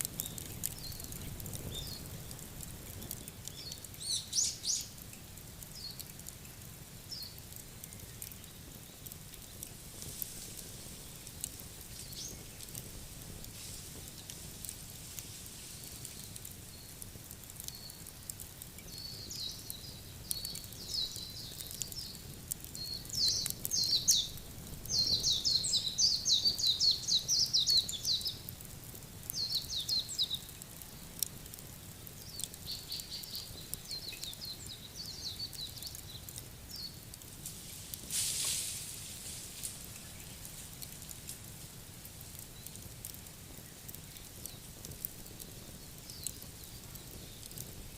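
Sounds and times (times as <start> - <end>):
low outdoor hiss: 0.0 - 47.9
songbird chirping: 3.0 - 5.0, 18.8 - 28.4, 32.2 - 41.1
faint clicks: 5.0 - 6.6, 7.3 - 19.0, 32.3 - 34.4, 42.1 - 47.8.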